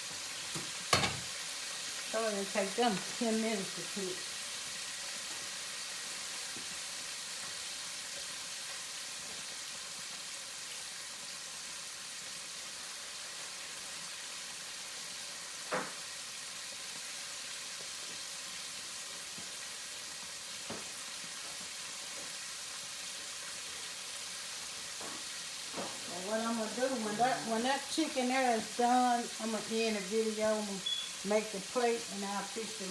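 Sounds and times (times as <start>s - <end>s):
chicken wings sizzling in grease: 0.0s - 32.9s.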